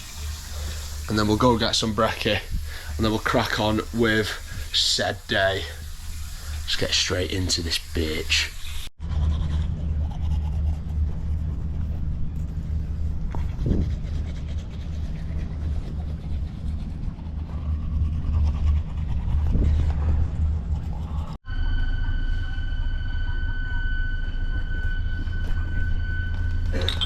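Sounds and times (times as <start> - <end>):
loud low rumble: 9.0 - 27.0.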